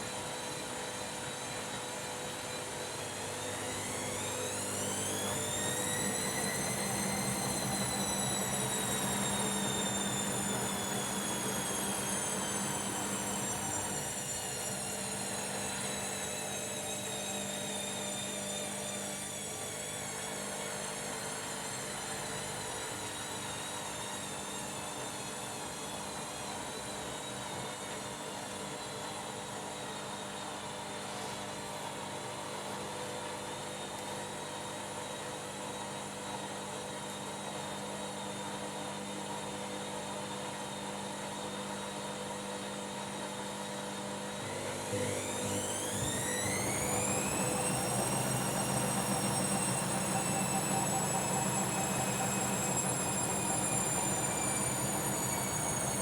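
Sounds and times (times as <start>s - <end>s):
washing machine motor whining: 0.1s - 28.7s, 42.8s - 56.0s.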